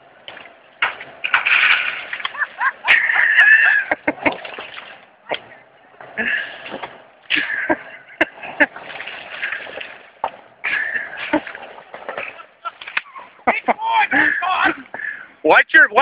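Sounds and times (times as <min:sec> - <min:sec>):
branches and brush rustling: 0:00.0 - 0:15.2
tree limbs cracking and snapping: 0:00.2 - 0:02.4.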